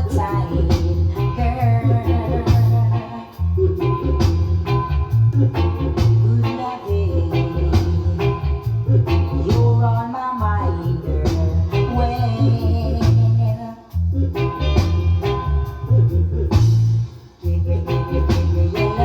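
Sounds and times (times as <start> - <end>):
reggae music with heavy bass: 0.0 - 19.0.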